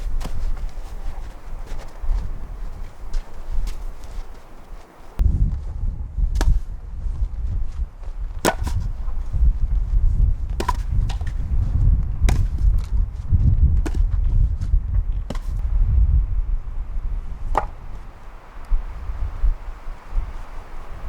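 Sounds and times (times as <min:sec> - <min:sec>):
wind buffeting microphone: 0:00.0 - 0:21.0
firewood knocks: 0:08.4 - 0:08.9, 0:10.6 - 0:11.4, 0:13.8 - 0:14.0, 0:15.3 - 0:15.6, 0:17.5 - 0:18.0.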